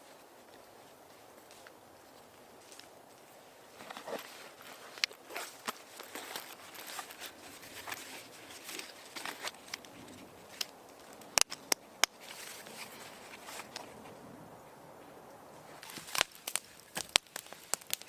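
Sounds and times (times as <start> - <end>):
sharp clicks: 10.6 - 12.2.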